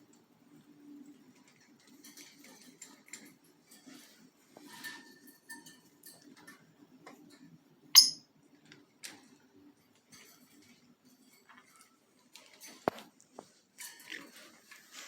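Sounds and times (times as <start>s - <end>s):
parrots moving about: 0.5s - 15.0s
parrot chirping: 8.0s - 8.2s.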